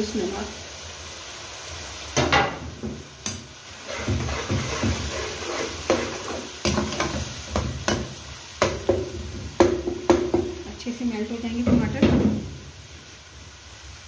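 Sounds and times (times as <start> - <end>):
spices sizzling in hot oil: 0.0 - 14.0
metal spoon scraping a pot: 3.8 - 7.2.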